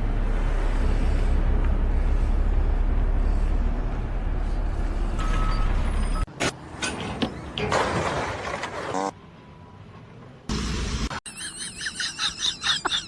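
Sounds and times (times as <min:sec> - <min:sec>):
vehicle engine rumbling: 0:00.0 - 0:07.8.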